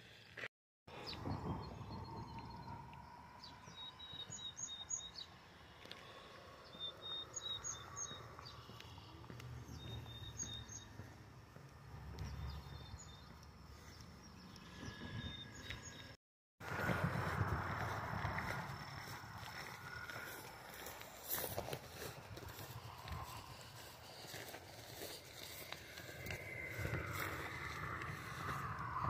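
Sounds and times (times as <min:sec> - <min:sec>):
songbird chirping: 0:00.9 - 0:16.2, 0:19.4 - 0:29.0
low outdoor rumble: 0:16.6 - 0:29.0.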